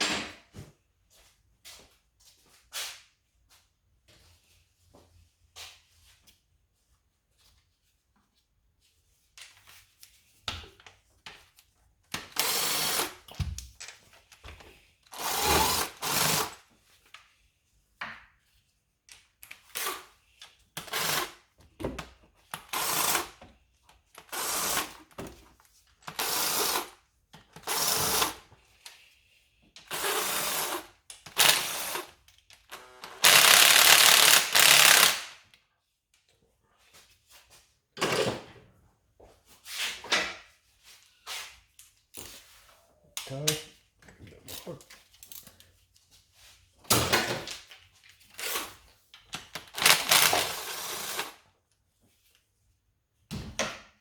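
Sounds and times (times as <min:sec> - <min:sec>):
power tool bursts: 0:29.9 - 0:32.1, 0:32.7 - 0:35.4, 0:49.7 - 0:51.4.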